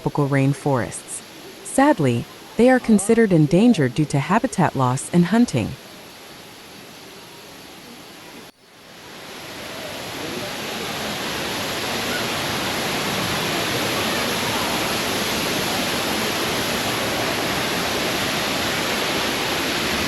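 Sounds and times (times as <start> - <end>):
waterfall rushing: 8.9 - 20.0.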